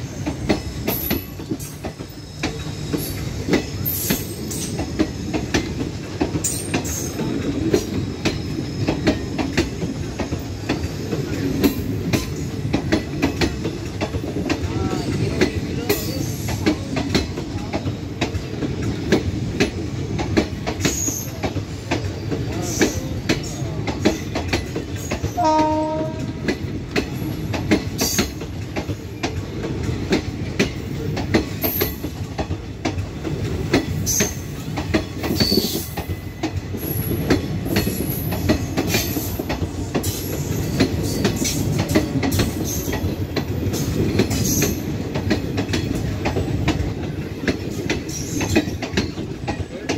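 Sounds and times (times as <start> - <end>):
train wheels clattering: 0.0 - 49.9
train horn blast: 25.4 - 26.5.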